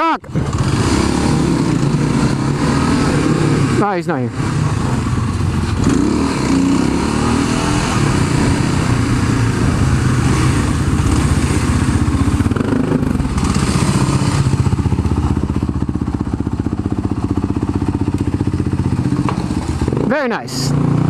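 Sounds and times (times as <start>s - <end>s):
dirt bike engine revving: 0.3s - 21.0s.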